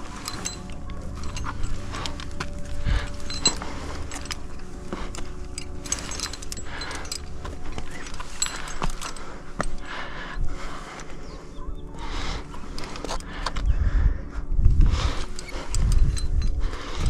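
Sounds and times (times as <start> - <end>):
rustling: 0.0 - 11.2
climbing gear jingling and clinking: 0.0 - 17.0.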